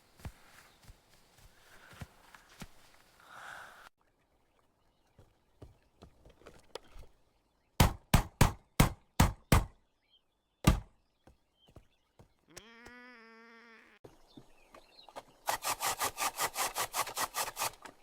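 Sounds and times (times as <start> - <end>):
sharp knocks: 10.6 - 10.9.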